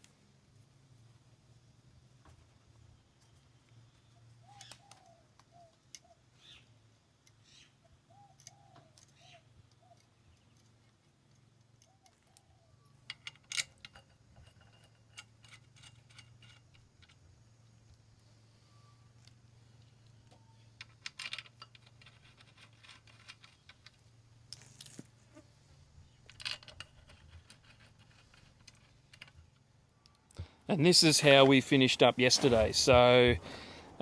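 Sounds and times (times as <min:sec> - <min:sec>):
faint bird calls: 0:03.8 - 0:06.8, 0:07.4 - 0:10.7.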